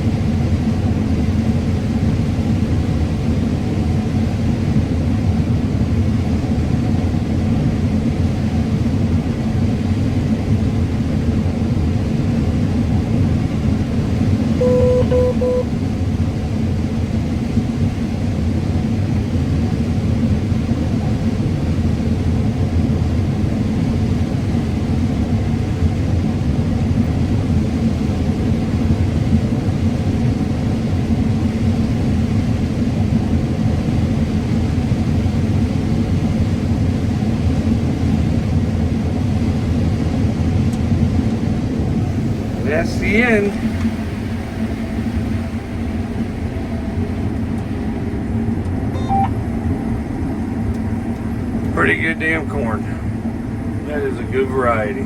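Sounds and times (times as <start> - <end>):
combine harvester rumbling: 0.0 - 55.0.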